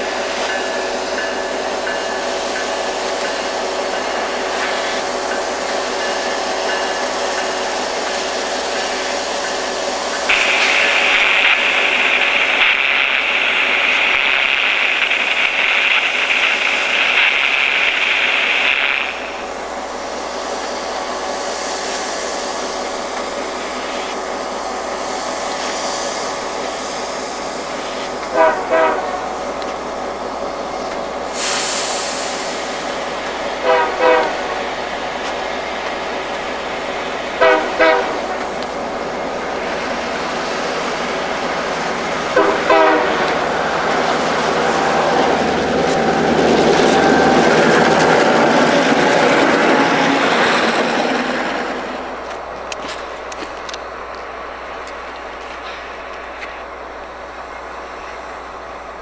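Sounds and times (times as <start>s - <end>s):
train rolling past: 0.0s - 59.0s
steady high-pitched tone: 8.7s - 21.0s.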